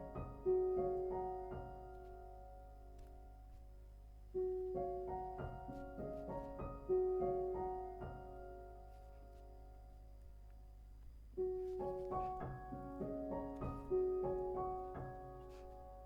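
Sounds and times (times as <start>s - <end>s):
soft solo piano: 0.0s - 16.0s.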